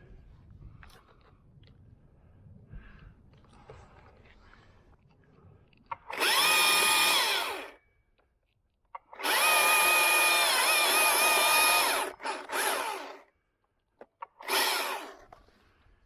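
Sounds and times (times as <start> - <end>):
chainsaw cutting wood: 6.1 - 7.8, 9.1 - 13.3, 14.3 - 15.4.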